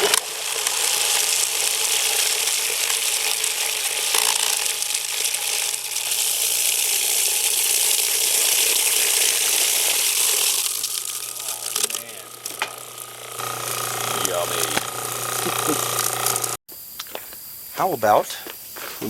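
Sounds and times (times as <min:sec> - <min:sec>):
garbage disposal grinding: 0:00.0 - 0:16.6.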